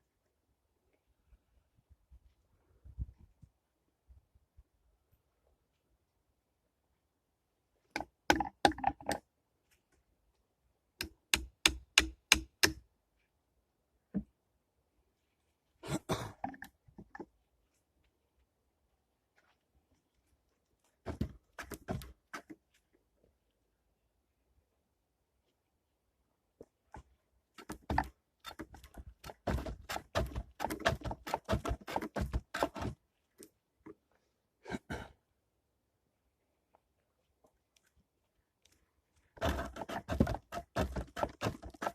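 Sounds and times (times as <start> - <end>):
tool striking wood: 11.0 - 12.8, 29.4 - 32.9, 39.4 - 41.9
knocks and scrapes: 20.8 - 22.9, 26.9 - 33.4, 39.3 - 41.9.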